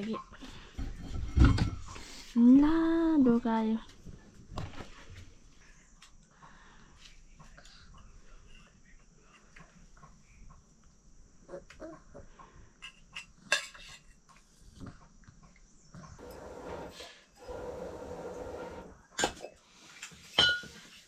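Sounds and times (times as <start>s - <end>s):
dishes and utensils clinking: 12.8s - 14.2s, 20.2s - 21.0s.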